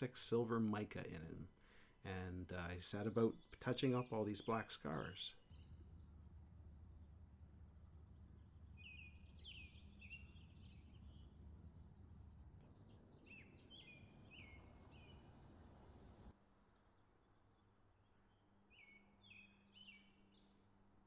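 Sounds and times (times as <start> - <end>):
small birds chirping: 0.0 - 17.1, 18.3 - 20.6
low steady rumble: 4.8 - 16.4.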